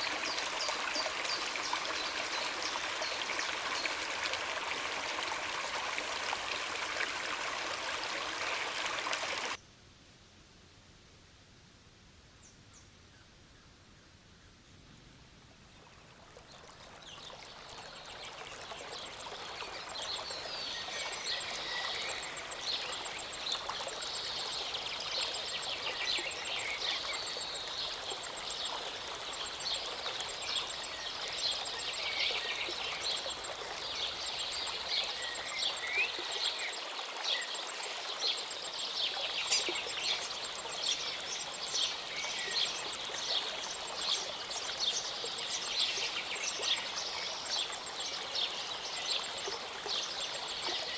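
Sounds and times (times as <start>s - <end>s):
mountain stream rushing: 0.0s - 9.6s.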